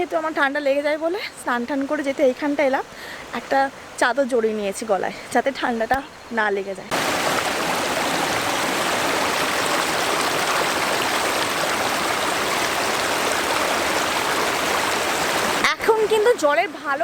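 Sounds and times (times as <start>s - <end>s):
river rushing: 6.9s - 17.0s.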